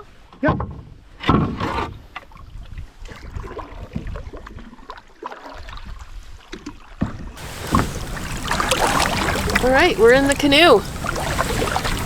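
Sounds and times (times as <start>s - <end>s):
canoe hollow knocks and scrapes: 7.0s - 12.0s
wind rumbling on microphone: 7.4s - 12.0s.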